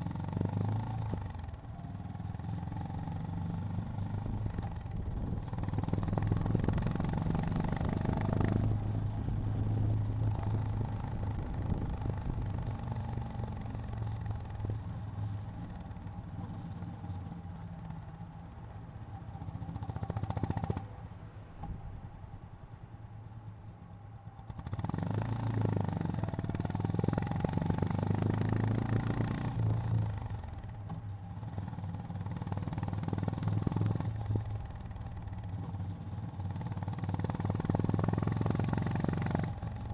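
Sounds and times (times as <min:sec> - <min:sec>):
motorcycle engine running: 0:23.8 - 0:39.9.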